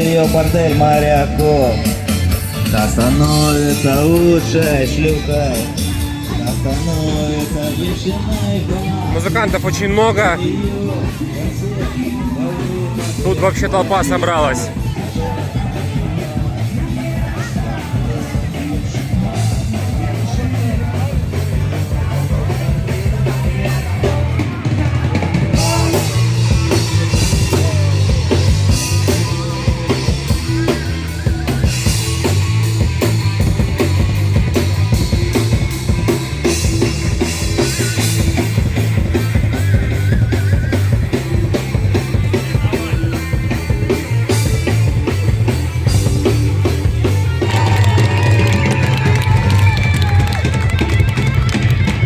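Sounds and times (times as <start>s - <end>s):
drum kit beat: 0.0s - 52.0s
live rock band playing: 0.0s - 52.0s.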